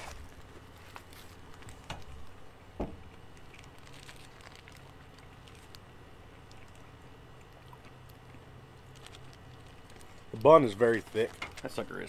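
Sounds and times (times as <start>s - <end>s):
paper wrapper rustling: 0.0s - 2.3s, 3.4s - 5.8s, 8.9s - 12.0s
quiet chewing of sandwich: 0.0s - 2.4s, 3.1s - 11.8s.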